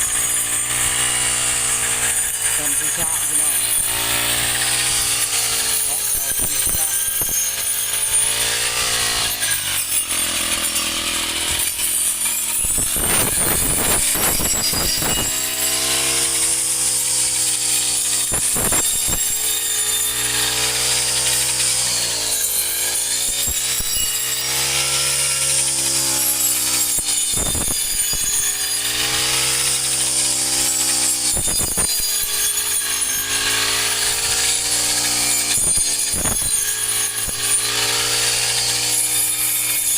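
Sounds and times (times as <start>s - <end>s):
high hiss of cutting: 0.0s - 8.6s.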